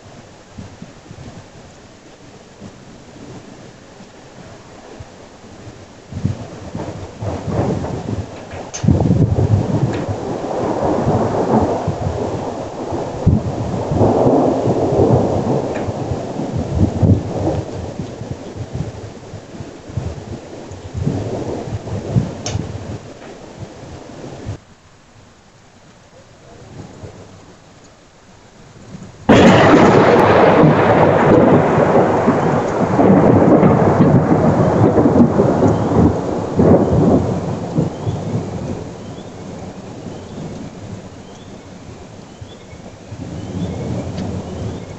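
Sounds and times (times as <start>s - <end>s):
rain: 0.0s - 44.9s
thunder rolling and rumbling: 2.5s - 24.6s, 26.4s - 27.6s, 28.7s - 44.9s
sharp thunder crack: 6.1s - 24.6s, 29.2s - 41.0s, 42.4s - 44.9s.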